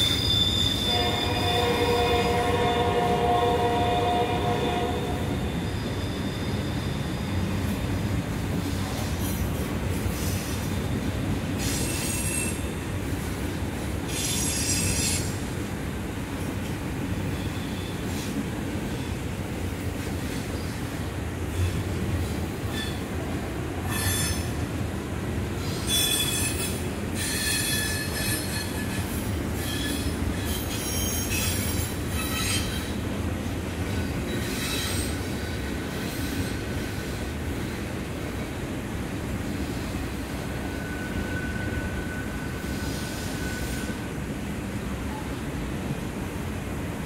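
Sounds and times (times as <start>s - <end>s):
high wheel squeal: 0.0s - 2.6s, 5.0s - 8.0s, 11.6s - 12.8s, 14.1s - 15.4s, 23.8s - 24.6s, 25.6s - 33.0s, 34.3s - 36.8s, 40.5s - 44.1s
train wheels rumbling on rail: 0.0s - 47.0s.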